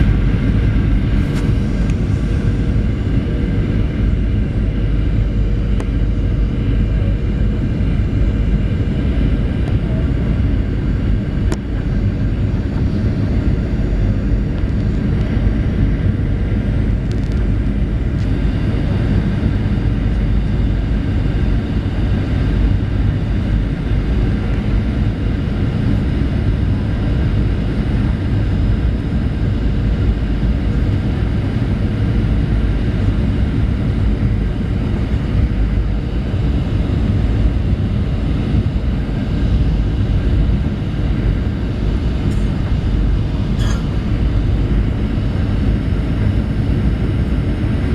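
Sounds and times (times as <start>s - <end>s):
rushing air: 0.0s - 4.5s
jet engine cabin drone: 0.0s - 47.9s.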